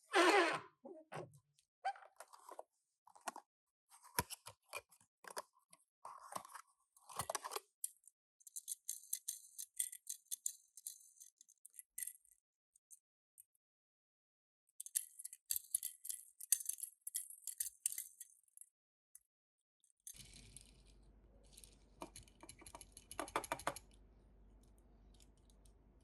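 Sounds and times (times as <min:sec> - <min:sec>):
toy cars clicking and tapping: 0:07.2 - 0:12.4, 0:14.8 - 0:18.6, 0:20.1 - 0:24.0.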